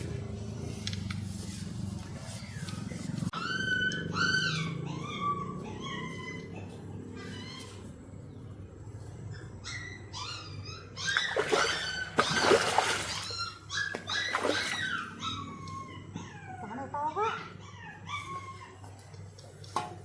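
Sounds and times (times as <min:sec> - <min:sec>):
dog whining: 0:03.3 - 0:07.8, 0:09.3 - 0:19.2.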